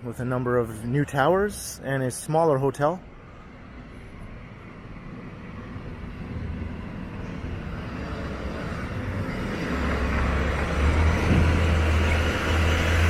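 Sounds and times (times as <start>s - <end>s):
heavy vehicle engine rumble: 3.0s - 13.0s.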